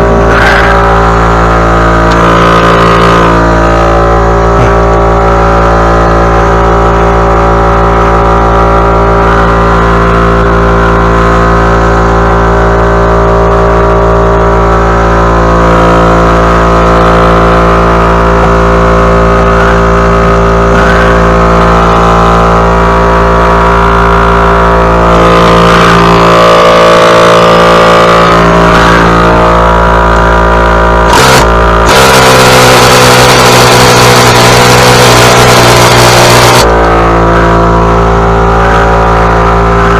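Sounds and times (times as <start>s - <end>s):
small gasoline engine running: 0.0s - 39.9s.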